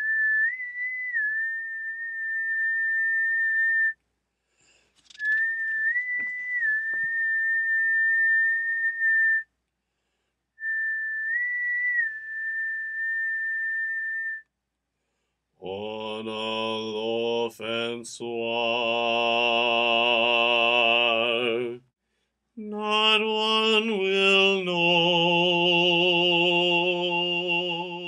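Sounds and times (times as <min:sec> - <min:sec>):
person whistling held notes: 0:00.0 - 0:04.0, 0:05.1 - 0:09.5, 0:10.6 - 0:14.5.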